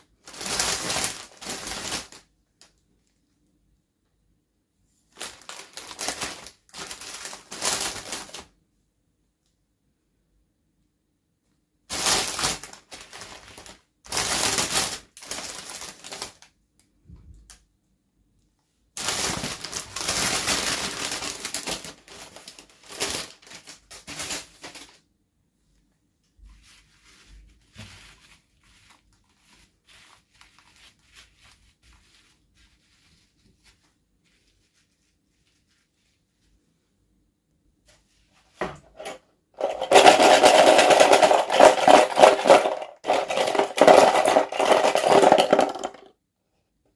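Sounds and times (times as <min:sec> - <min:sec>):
packaging tearing and crinkling: 0:00.2 - 0:02.2, 0:05.2 - 0:08.4, 0:11.9 - 0:16.5, 0:19.0 - 0:25.0, 0:39.6 - 0:46.0
clicks and rustles: 0:38.6 - 0:46.1.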